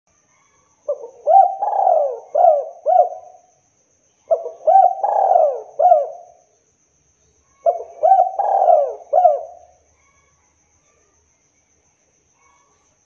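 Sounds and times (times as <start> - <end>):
dove cooing: 0.9 - 3.5, 4.3 - 6.4, 7.6 - 9.8.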